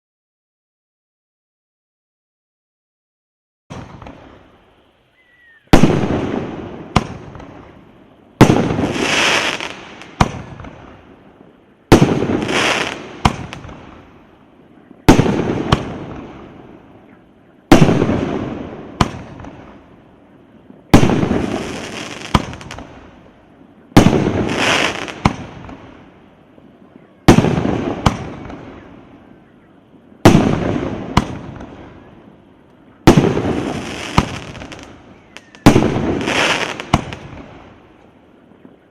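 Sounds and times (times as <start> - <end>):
firework bangs: 3.7 - 4.6, 5.7 - 14.2, 14.9 - 19.9, 20.7 - 23.2, 23.9 - 26.1, 27.2 - 29.2, 29.9 - 32.3, 33.0 - 37.8
crackling hiss: 3.7 - 38.9.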